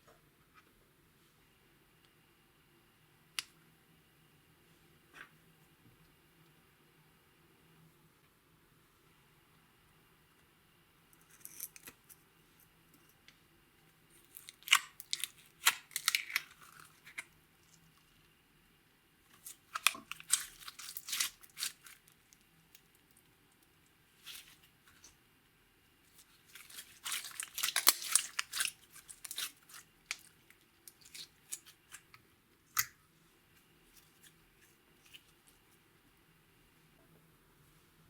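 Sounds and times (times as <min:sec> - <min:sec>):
slime crackling by hand: 0:19.3 - 0:22.2, 0:26.1 - 0:32.2.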